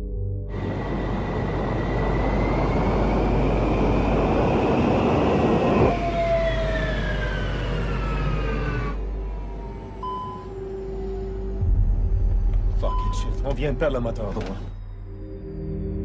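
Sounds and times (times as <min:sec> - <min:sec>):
jet engine roar: 0:00.5 - 0:11.7
engine spooling down whine: 0:00.5 - 0:16.0.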